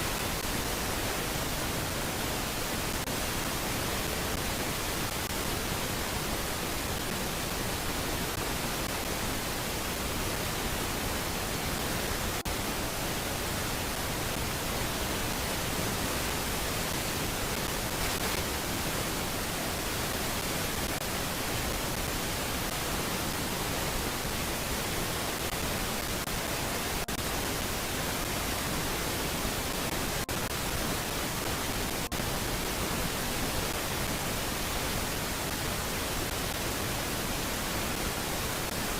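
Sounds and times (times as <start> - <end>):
steady static hiss: 0.0 - 38.9.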